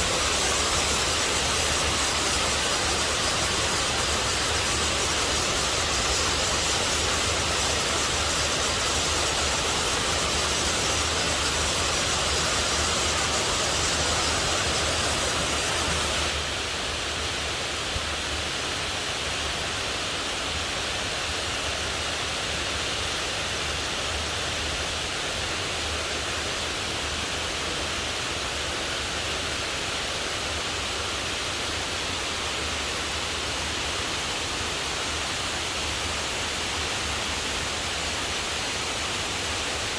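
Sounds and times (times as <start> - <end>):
heavy rain: 0.0 - 18.9.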